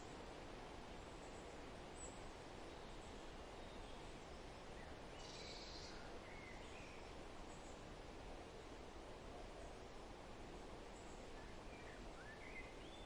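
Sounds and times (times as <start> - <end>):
soft forest hiss: 0.0 - 13.0.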